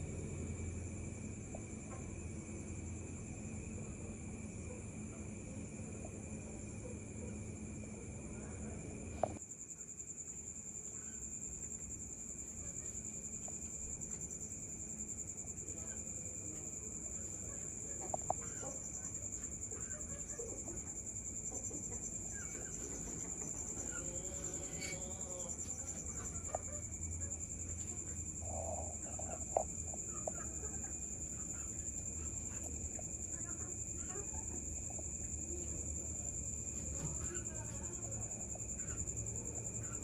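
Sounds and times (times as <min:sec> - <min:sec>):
crickets chirping: 0:00.0 - 0:40.0
bird calls and clucks: 0:17.1 - 0:33.4.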